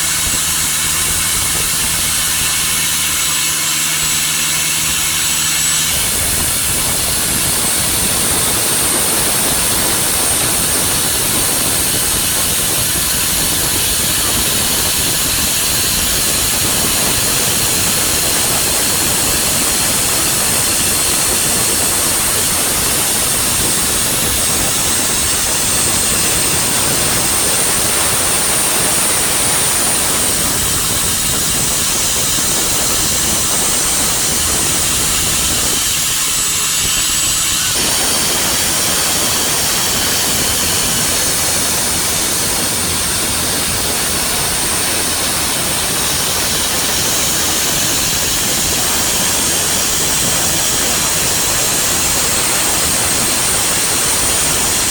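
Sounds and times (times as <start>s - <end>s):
boat motor running: 0.0s - 54.9s
thin high whine: 5.0s - 54.9s
wind and water rushing: 37.2s - 54.9s.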